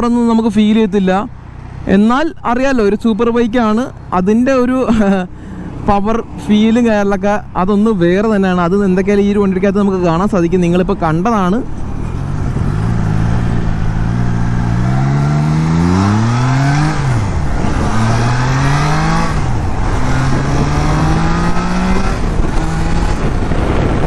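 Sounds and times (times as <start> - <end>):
motorcycle engine accelerating: 11.8 - 24.0.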